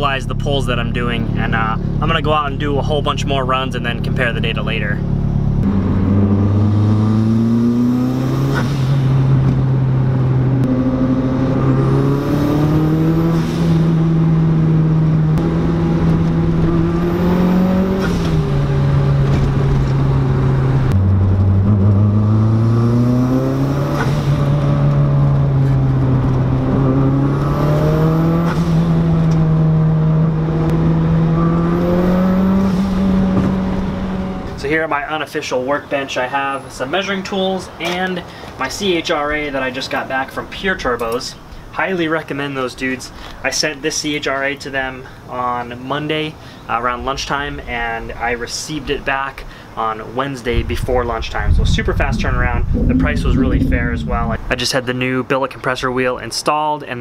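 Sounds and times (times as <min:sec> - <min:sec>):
car engine under full throttle: 0:00.0 - 0:34.7, 0:50.8 - 0:54.8.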